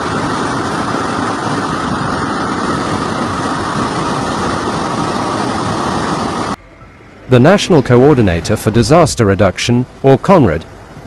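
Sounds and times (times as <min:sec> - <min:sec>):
floodwater running over street: 0:00.0 - 0:06.6
heavy rain pouring: 0:00.0 - 0:06.6.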